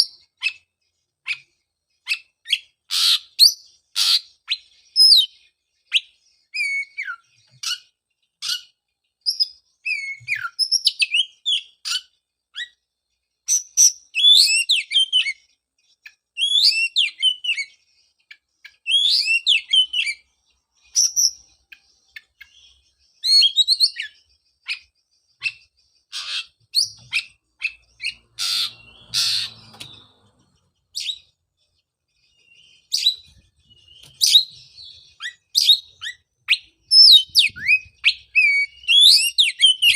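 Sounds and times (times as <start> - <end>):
bird singing whistled phrases: 2.1 - 7.8, 9.3 - 12.0, 13.5 - 15.4, 16.4 - 17.7, 18.8 - 20.2, 23.2 - 25.6, 32.4 - 39.9
harsh rasping bird call: 28.0 - 29.7.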